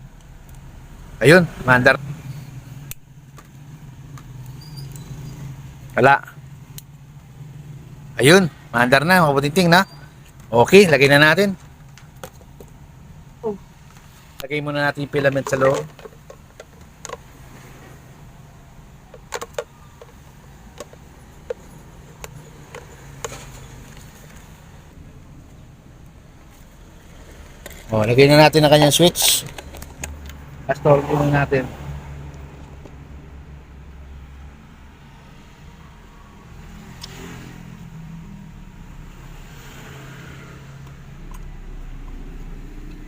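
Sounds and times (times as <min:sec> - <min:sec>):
engine rumbling: 0:00.0 - 0:43.0
clicks and taps of kettle parts: 0:15.3 - 0:17.2, 0:19.1 - 0:24.0.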